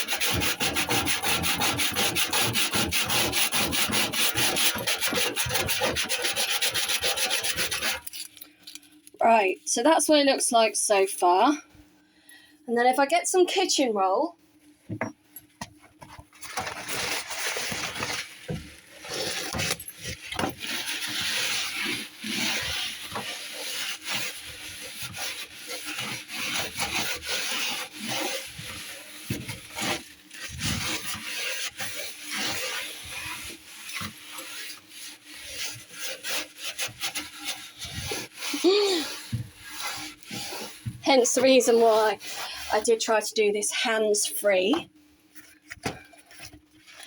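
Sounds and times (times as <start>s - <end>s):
paper towel rubbing on metal: 0.0s - 8.3s, 16.4s - 43.4s.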